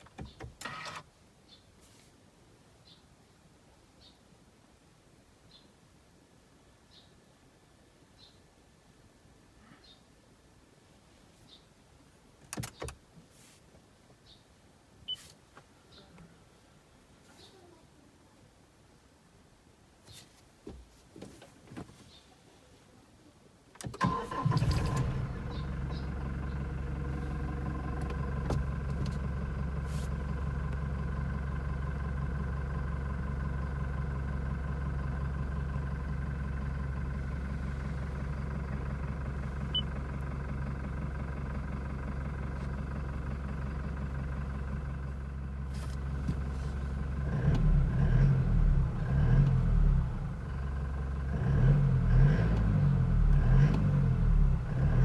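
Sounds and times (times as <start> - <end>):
diesel engine starting and idling: 23.8 - 55.0
engine revving in blips: 24.0 - 30.8, 37.2 - 40.4, 47.1 - 55.0.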